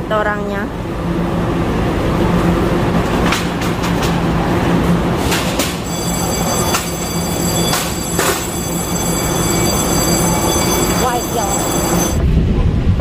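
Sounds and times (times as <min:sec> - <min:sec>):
train electric hum and rumble: 0:00.0 - 0:13.0
high whine: 0:05.8 - 0:12.2.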